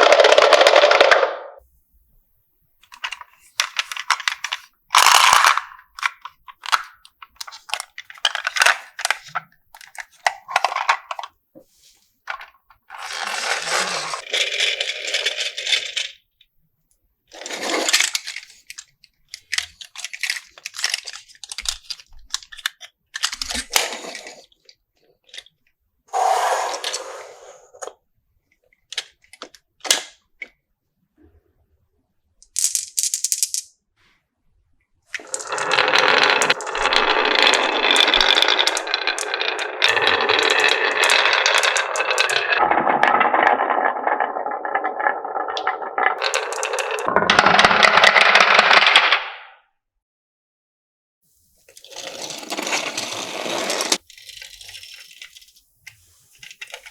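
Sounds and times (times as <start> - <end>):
marbles rattling on wooden run: 0.0 - 1.6, 2.9 - 11.2, 12.9 - 16.2, 26.2 - 27.7, 32.4 - 33.7, 35.2 - 49.2, 51.8 - 55.6.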